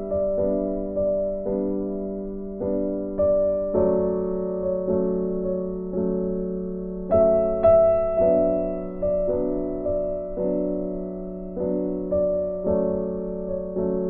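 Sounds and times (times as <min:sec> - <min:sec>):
soft piano chords: 0:00.0 - 0:14.0.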